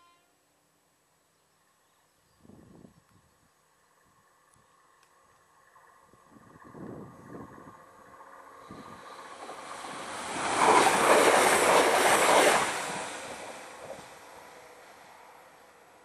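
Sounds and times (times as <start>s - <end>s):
train passing at speed: 3.7s - 16.0s.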